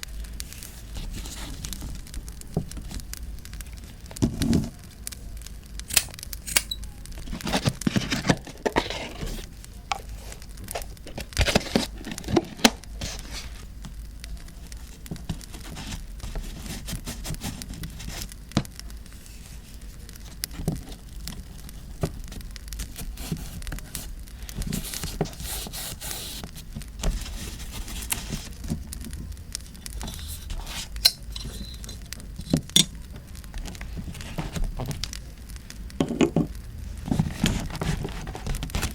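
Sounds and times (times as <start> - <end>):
campfire crackling and popping: 0.0 - 25.4, 26.4 - 38.9
paper rustling and tearing: 7.2 - 9.5, 10.2 - 13.6, 22.9 - 28.9, 29.8 - 32.6.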